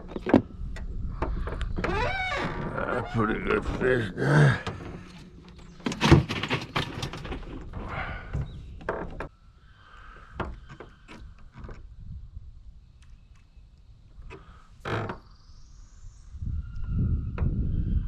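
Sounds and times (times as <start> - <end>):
knocks and clatter: 4.6 - 9.3.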